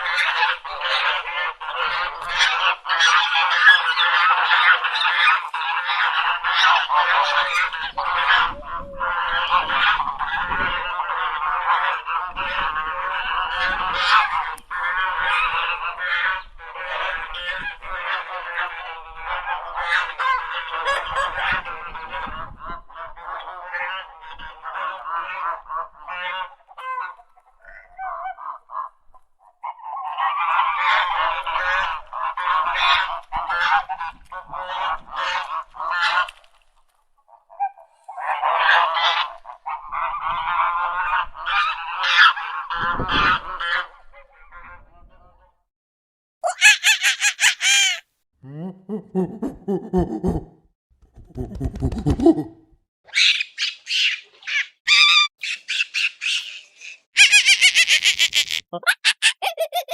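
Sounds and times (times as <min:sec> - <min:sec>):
waterfowl honking: 0:00.0 - 0:29.0, 0:30.4 - 0:36.6, 0:38.2 - 0:44.0, 0:46.4 - 0:48.0, 0:53.1 - 0:59.9.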